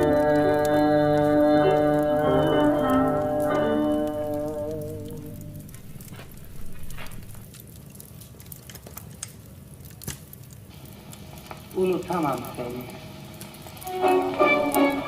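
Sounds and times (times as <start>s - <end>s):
person singing: 0.0s - 5.6s
held musical note: 0.0s - 5.8s, 13.8s - 15.0s
wood fire crackling: 0.0s - 15.0s
faint low rumble: 3.2s - 7.6s.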